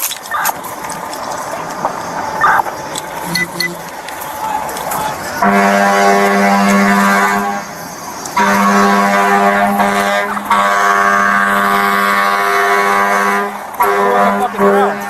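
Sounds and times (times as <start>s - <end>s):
air horn blasts: 3.2s - 3.9s, 5.0s - 15.0s.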